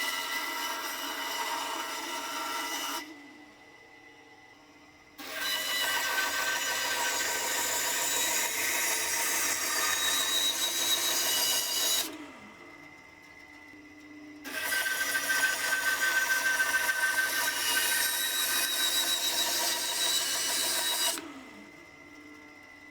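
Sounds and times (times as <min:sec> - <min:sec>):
bandsaw cutting wood: 0:00.0 - 0:03.0, 0:05.2 - 0:12.2, 0:14.4 - 0:21.3.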